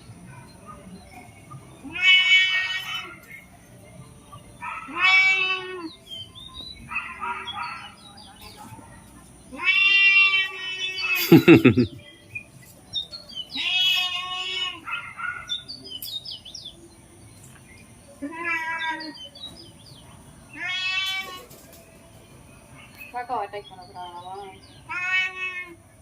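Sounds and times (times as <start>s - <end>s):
animal drawn-out cries: 1.8s - 3.2s, 4.6s - 5.9s, 13.5s - 15.2s, 24.9s - 25.8s.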